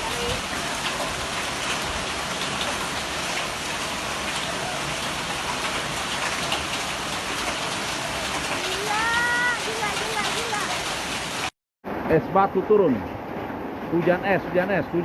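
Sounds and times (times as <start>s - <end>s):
hail and rain pelting down: 0.0s - 11.5s.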